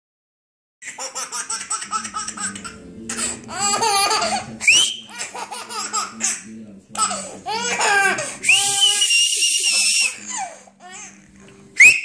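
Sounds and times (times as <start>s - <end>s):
baby laughing: 0.8s - 11.3s
person whistling: 4.6s - 5.0s, 8.4s - 10.1s, 11.8s - 12.0s.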